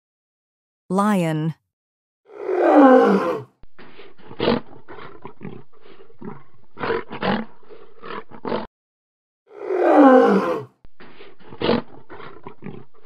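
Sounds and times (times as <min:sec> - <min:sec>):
lion roaring: 0:02.3 - 0:08.7, 0:09.5 - 0:10.7, 0:11.4 - 0:13.0
lion grunts: 0:11.2 - 0:13.0.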